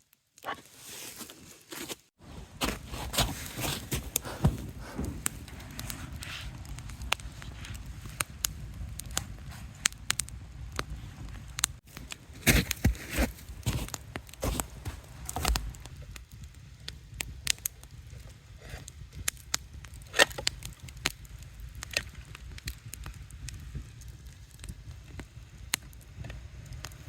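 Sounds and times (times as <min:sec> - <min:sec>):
campfire crackling and popping: 0:02.3 - 0:27.0
low rumble: 0:02.4 - 0:12.3.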